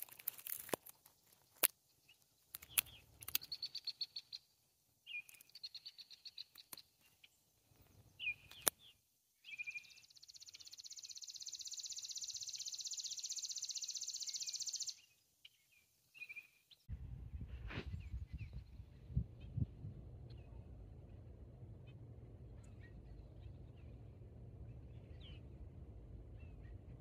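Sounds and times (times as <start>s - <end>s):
songbirds chirping and trilling: 0.0s - 27.0s
low rumble: 16.9s - 27.0s.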